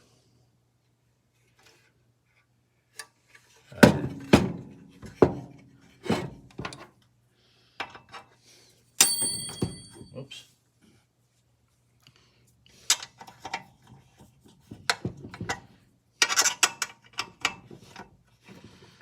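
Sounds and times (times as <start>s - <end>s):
metal tool parts knocking: 9.0s - 10.0s
metallic clang: 9.0s - 10.1s.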